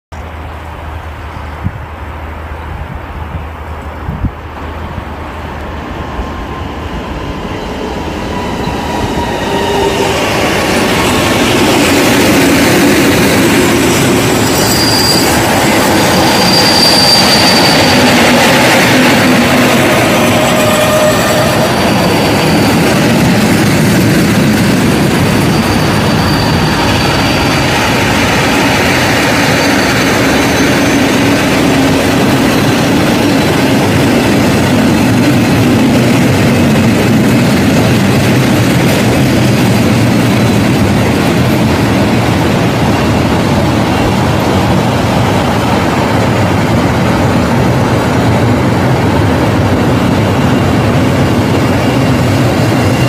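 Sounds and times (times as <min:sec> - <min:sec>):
freight train rumbling past: 0:00.1 - 0:53.0
train wheel squeals: 0:06.0 - 0:42.0, 0:48.0 - 0:53.0.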